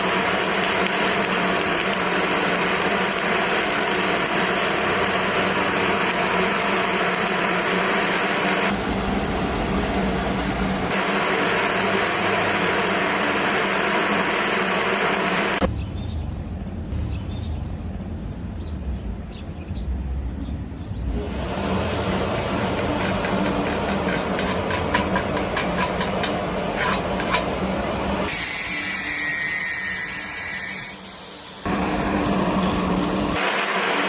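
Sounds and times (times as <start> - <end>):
steady hum: 0.0 - 15.7, 21.0 - 28.3
welding arc sizzling and crackling: 0.0 - 15.7, 21.1 - 34.0.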